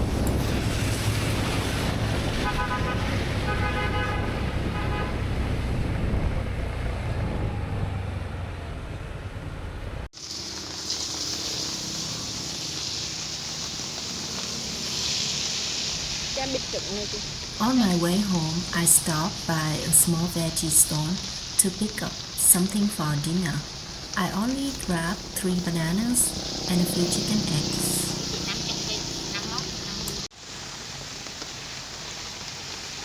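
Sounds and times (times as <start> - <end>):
rain hissing: 0.0 - 7.4, 10.0 - 33.0
road traffic rumbling: 0.0 - 31.2
vehicle horn honking: 2.4 - 5.3.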